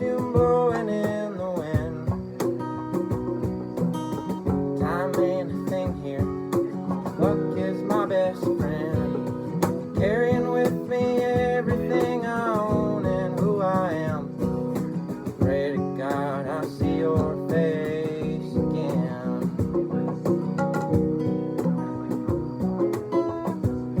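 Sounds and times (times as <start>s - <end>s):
man singing: 0.0s - 3.1s, 4.4s - 20.5s
cajon and percussion strikes: 0.0s - 24.0s
strummed acoustic guitar: 0.0s - 24.0s.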